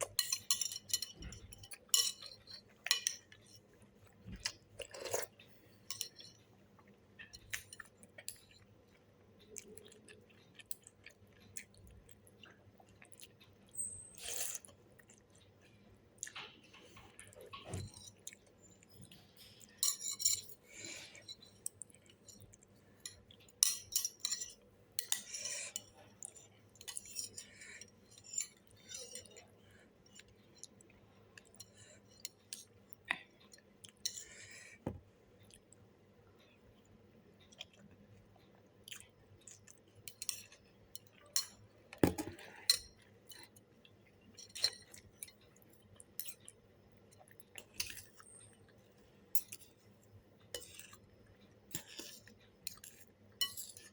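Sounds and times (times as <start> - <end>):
utensils clinking against bowl: 0.0 - 3.3, 19.8 - 20.6, 23.0 - 25.9.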